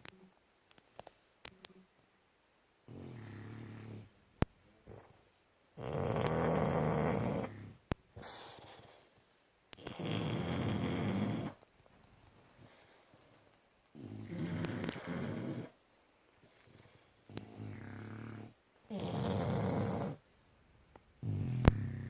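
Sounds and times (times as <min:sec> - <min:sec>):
dog snoring: 0:02.9 - 0:04.1, 0:05.8 - 0:09.1, 0:09.8 - 0:11.6, 0:13.9 - 0:15.8, 0:16.4 - 0:20.2, 0:21.2 - 0:22.0
dog breathing softly: 0:12.5 - 0:13.6, 0:16.4 - 0:18.2.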